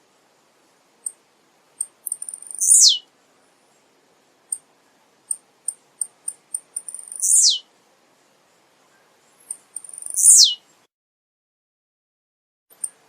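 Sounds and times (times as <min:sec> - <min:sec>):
bird chips and down-sweeping song: 0:01.8 - 0:07.7, 0:08.4 - 0:10.9.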